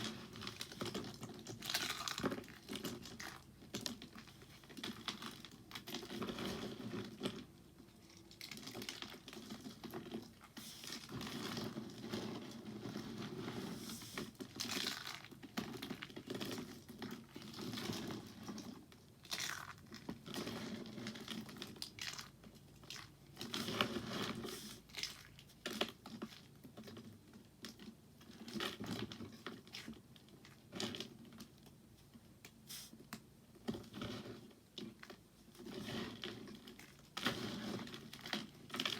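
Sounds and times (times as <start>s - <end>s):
soap crackling in hands: 18.4s - 23.6s.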